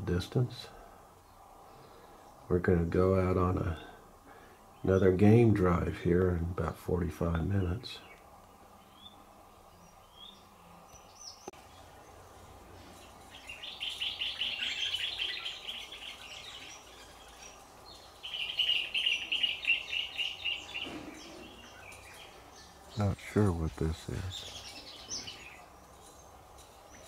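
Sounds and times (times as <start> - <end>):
bird chattering trills: 13.0 - 25.8.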